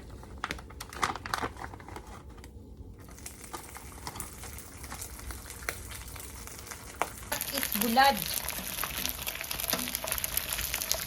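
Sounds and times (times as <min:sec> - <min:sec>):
oil crackles and pops: 0:00.3 - 0:11.0
fish sizzling in hot oil: 0:03.2 - 0:11.0.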